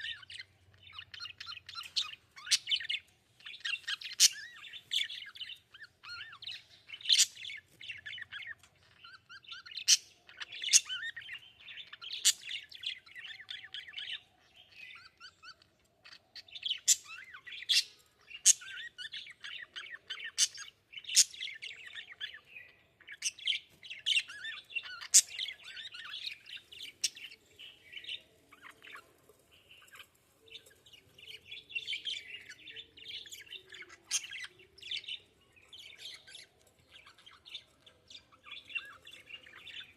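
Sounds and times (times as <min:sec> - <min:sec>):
budgerigars chattering: 0:00.0 - 0:14.2, 0:23.0 - 0:29.0, 0:31.5 - 0:35.2.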